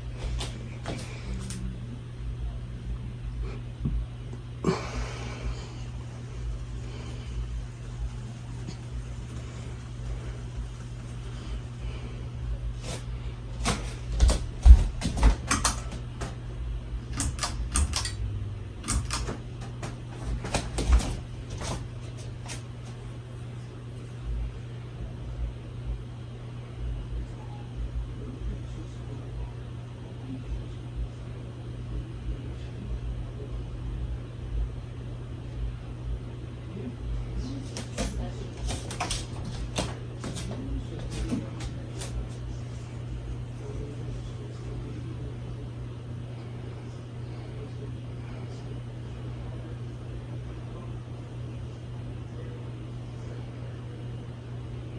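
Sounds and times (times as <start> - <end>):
ceiling fan motor humming: 0.0 - 54.9
sharp clicks and knocks: 13.6 - 16.4, 17.1 - 18.2, 18.8 - 21.1.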